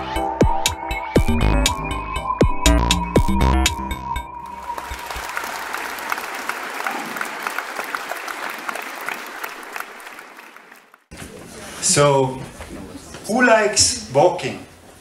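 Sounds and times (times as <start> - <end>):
electronic intro music: 0.0 - 5.4
audience applause: 4.5 - 11.1.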